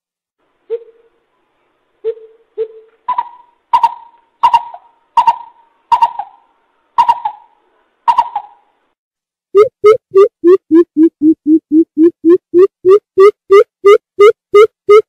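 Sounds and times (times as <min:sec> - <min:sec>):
bird hooting: 0:00.7 - 0:01.2, 0:02.0 - 0:08.6.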